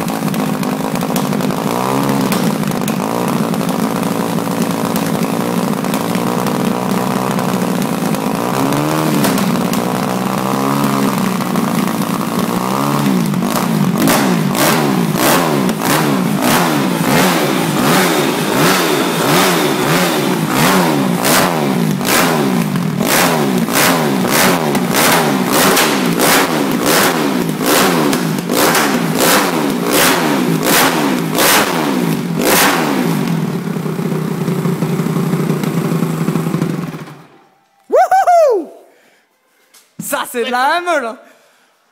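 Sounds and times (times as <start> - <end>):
motocross engine revving: 0.0 - 37.2.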